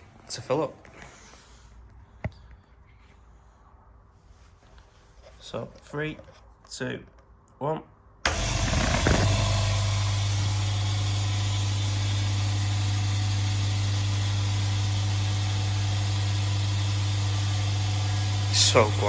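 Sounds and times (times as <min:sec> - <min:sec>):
air compressor humming: 0:08.3 - 0:19.0.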